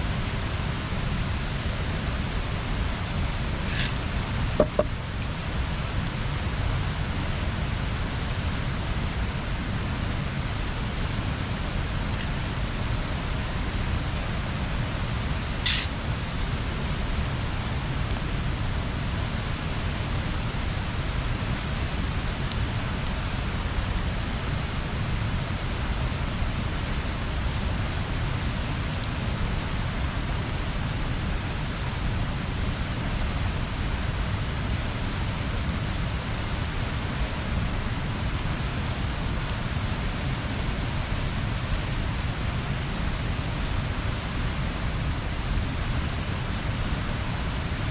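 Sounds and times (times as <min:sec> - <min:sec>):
bonfire burning hiss: 0:00.0 - 0:47.9
burning wood popping: 0:03.5 - 0:05.4.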